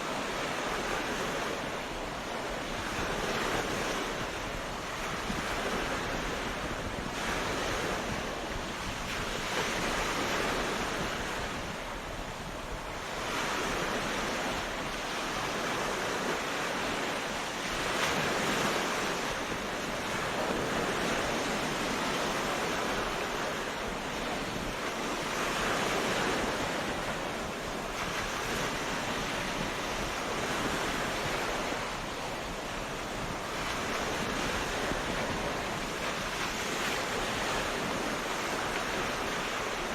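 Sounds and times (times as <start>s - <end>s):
ocean waves breaking: 0.0s - 39.9s
wind: 0.0s - 39.9s.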